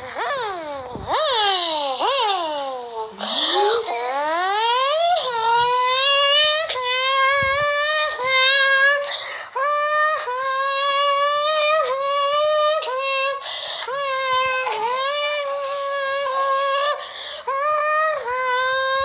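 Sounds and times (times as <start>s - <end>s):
sharp breaths: 8.8s - 9.6s, 13.4s - 14.0s, 17.0s - 17.5s.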